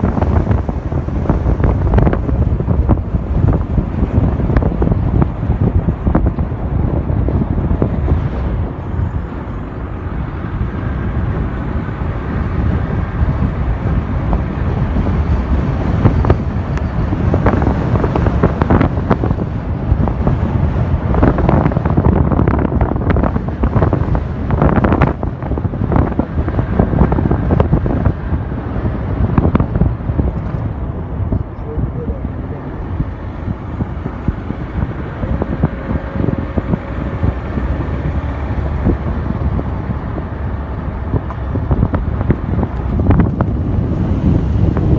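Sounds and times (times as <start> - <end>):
low road rumble: 0.0 - 44.9
wind buffeting microphone: 0.0 - 44.9.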